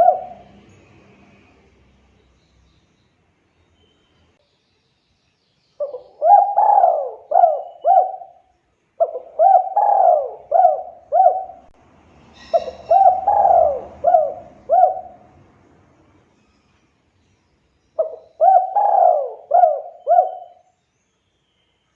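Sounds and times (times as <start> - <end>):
dove cooing: 0.0 - 0.6, 5.8 - 8.4, 9.0 - 11.7, 12.4 - 15.4, 18.0 - 20.6
higher-pitched bird chirp: 5.7 - 8.4, 12.3 - 15.2.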